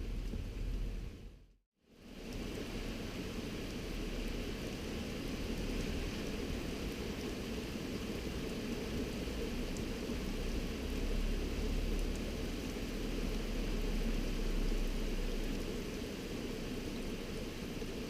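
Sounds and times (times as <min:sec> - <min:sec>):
heavy rain hissing: 0:01.9 - 0:18.0.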